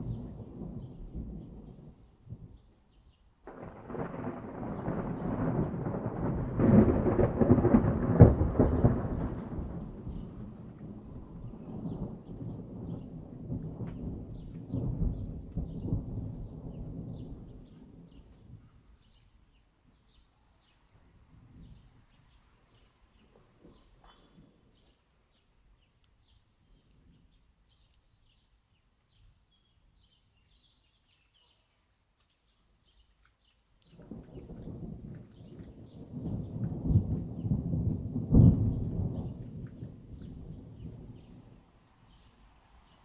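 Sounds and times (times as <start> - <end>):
thunder rumbling: 0.0 - 2.6, 3.5 - 18.8, 33.9 - 43.0.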